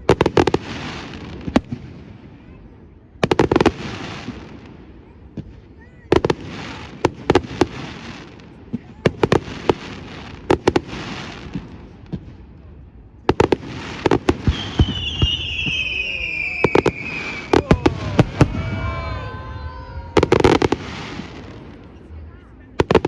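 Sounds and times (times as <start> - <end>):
fireworks bangs: 13.3 - 23.0
fireworks crackling: 13.3 - 23.0
high whistle sliding down: 14.6 - 20.7.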